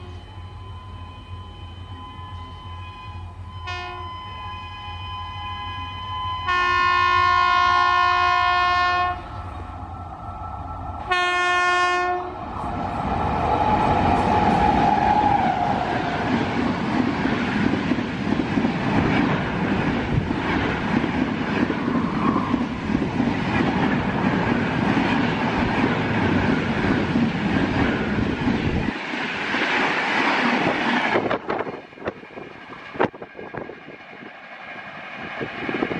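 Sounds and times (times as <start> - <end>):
train wheels rushing on rails: 0.0 - 35.9
locomotive horn blasts: 2.0 - 9.4, 11.1 - 12.4.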